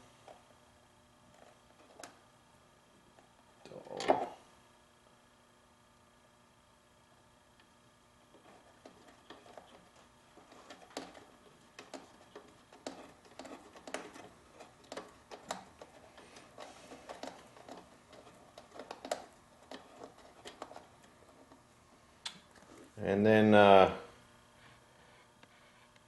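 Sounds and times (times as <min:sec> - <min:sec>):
hand tools clicking and tapping: 0:10.4 - 0:21.6.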